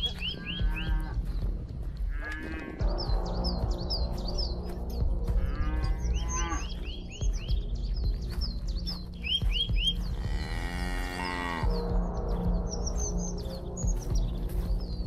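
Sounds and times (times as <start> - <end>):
birds chirping: 0.0 - 15.0
cow mooing: 2.1 - 2.8, 5.4 - 6.8, 10.2 - 11.7.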